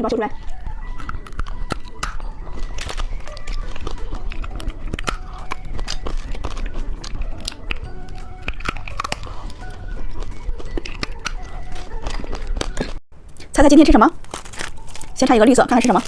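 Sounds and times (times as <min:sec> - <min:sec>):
light background music: 0:00.0 - 0:12.8, 0:13.5 - 0:16.0
candy crunching: 0:12.0 - 0:16.0.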